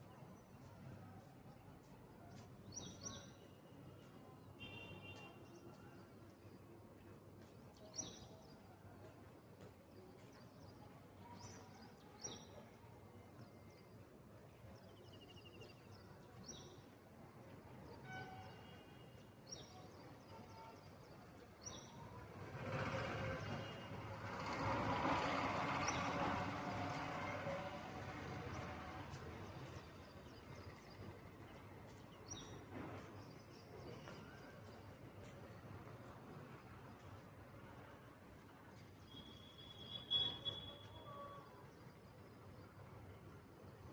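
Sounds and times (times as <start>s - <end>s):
bird chirps: 39.1s - 41.4s.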